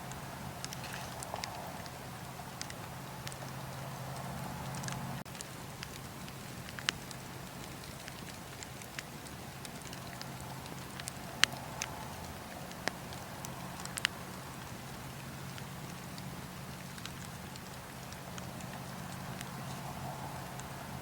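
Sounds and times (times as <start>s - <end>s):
bonfire crackling: 0.0s - 21.0s
fire popping: 0.0s - 21.0s.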